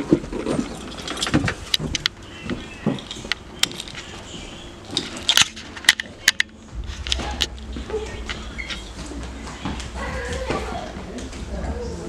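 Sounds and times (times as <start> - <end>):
sharp clicks and crunches: 0.0 - 4.3, 4.9 - 9.1
low steady rumble: 4.2 - 12.0.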